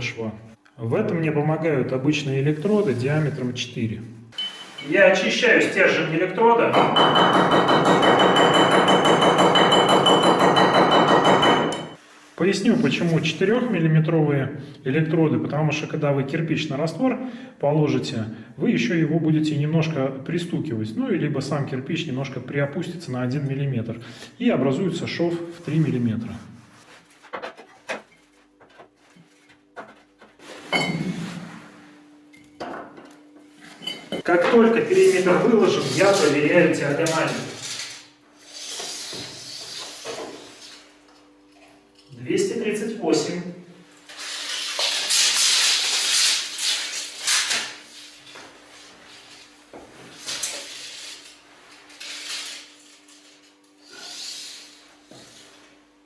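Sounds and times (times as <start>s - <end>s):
tape measure rubs and scrapes: 44.1s - 48.2s.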